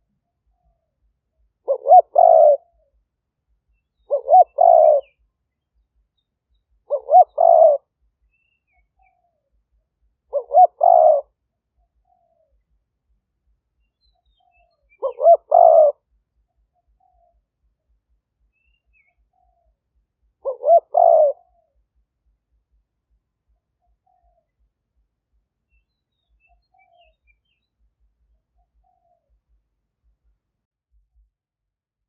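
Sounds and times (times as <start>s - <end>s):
dove cooing: 1.6s - 2.9s, 4.0s - 5.2s, 6.8s - 7.9s, 10.3s - 11.4s, 14.6s - 16.0s, 20.4s - 21.8s.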